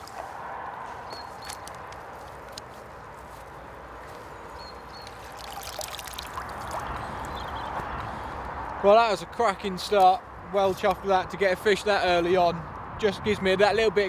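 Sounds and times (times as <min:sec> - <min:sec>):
water sloshing and trickling: 0:04.9 - 0:07.8
small splashes and clicks: 0:05.0 - 0:07.4.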